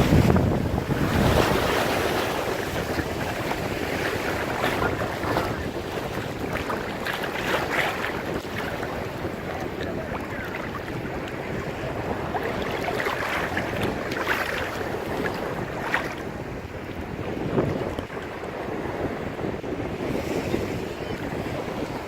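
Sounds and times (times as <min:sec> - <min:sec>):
ocean surf breaking: 0:00.0 - 0:16.8
wind buffeting microphone: 0:00.0 - 0:22.0.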